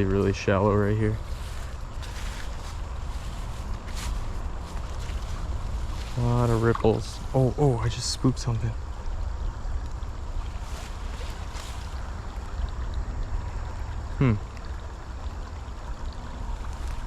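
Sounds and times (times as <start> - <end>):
shallow creek flowing: 0.0 - 17.0
short falling vocal sound: 14.2 - 14.4.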